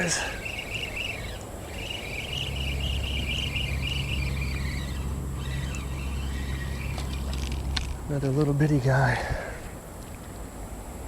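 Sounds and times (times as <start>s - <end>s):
bird chirping rapidly: 0.0s - 7.3s.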